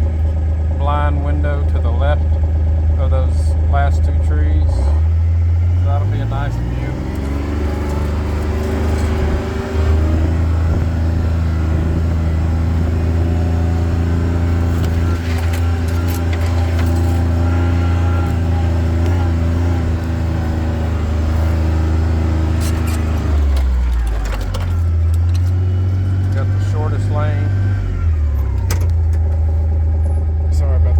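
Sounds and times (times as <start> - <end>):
vehicle engine running: 0.0 - 30.9
rattling clicks: 13.2 - 26.7.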